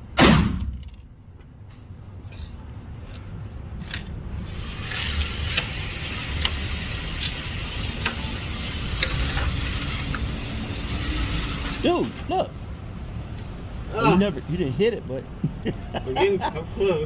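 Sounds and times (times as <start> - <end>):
target carrier rattling hiss: 1.7 - 14.7.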